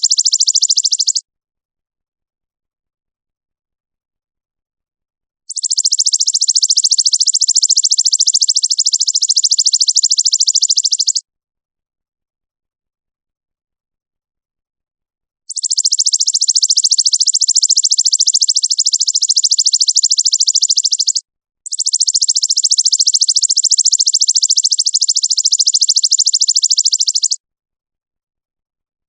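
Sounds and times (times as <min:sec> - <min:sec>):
fast buzzing trill call: 0:00.0 - 0:01.2, 0:05.5 - 0:11.2, 0:15.5 - 0:27.4.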